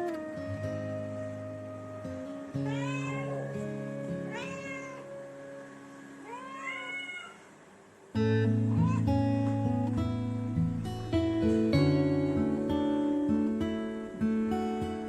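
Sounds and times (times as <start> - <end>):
background music: 0.0 - 6.6, 8.2 - 15.0
cat meowing: 2.6 - 5.2, 6.2 - 7.5, 8.7 - 9.2.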